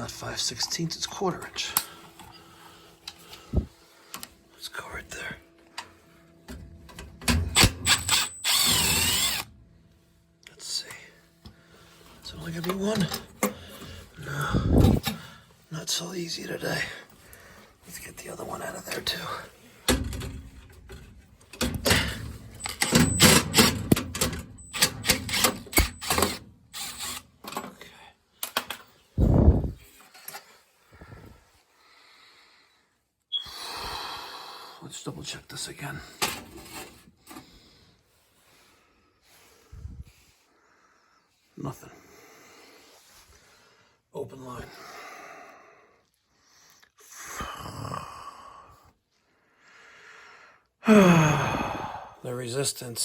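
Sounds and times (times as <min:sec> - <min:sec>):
man breathing out heavily: 0:13.5 - 0:15.6, 0:30.8 - 0:34.8, 0:44.7 - 0:52.2.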